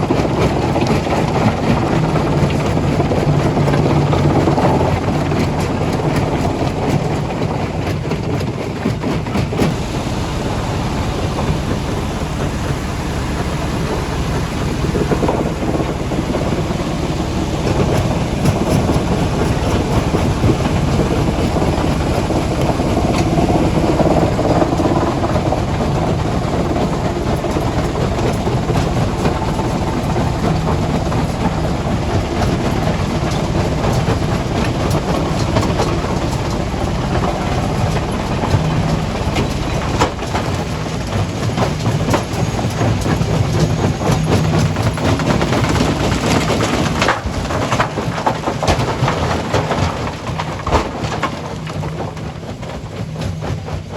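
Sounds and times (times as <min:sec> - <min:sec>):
heavy machinery rumbling: 0:00.0 - 0:53.9.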